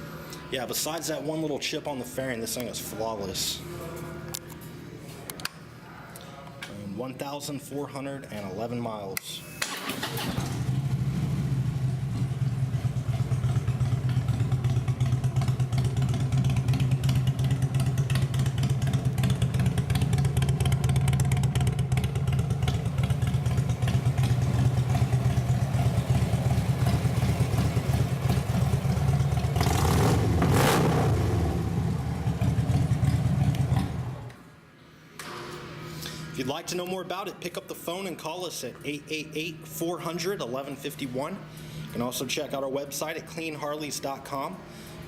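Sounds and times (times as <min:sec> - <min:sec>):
motorcycle engine idling and revving: 0:10.2 - 0:34.3.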